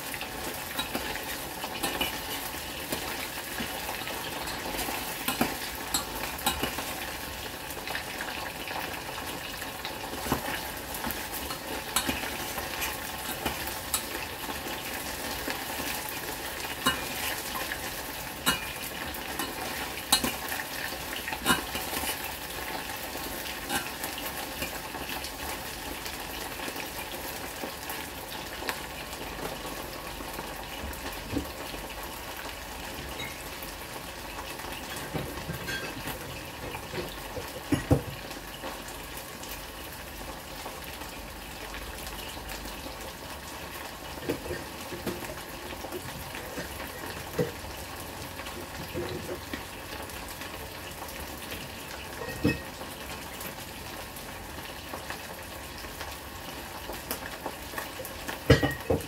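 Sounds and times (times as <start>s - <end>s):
meat sizzling in a pot: 0.0s - 59.0s
metal utensil scraping and clinking: 0.7s - 7.0s, 10.3s - 14.3s, 16.7s - 20.6s, 21.3s - 22.3s, 23.7s - 24.0s, 34.8s - 36.9s.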